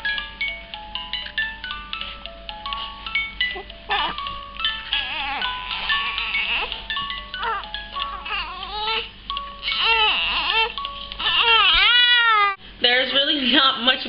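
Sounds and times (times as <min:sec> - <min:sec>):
baby crying: 0:03.6 - 0:04.2, 0:04.9 - 0:06.8, 0:07.4 - 0:12.6.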